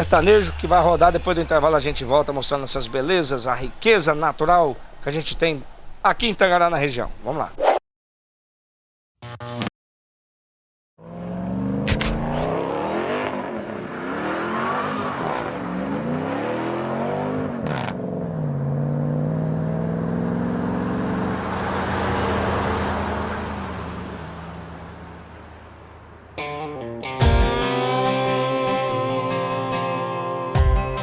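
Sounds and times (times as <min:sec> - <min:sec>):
car engine revving: 0:00.0 - 0:07.3, 0:11.0 - 0:26.7
sharp click: 0:11.9 - 0:12.5.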